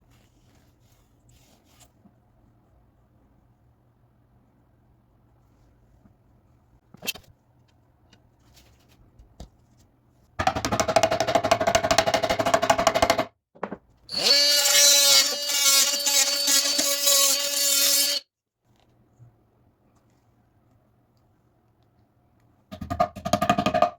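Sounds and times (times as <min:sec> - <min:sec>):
power tool buzzing: 0:14.1 - 0:18.2.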